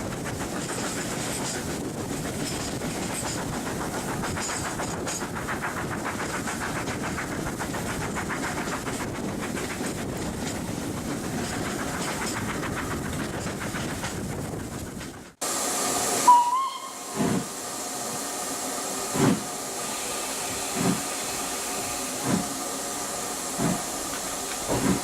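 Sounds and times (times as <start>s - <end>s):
steam hissing: 0.0s - 25.0s
steam locomotive exhaust chuffs: 0.0s - 25.0s
steam train running on track: 0.0s - 25.0s
steam locomotive whistle: 16.0s - 17.5s.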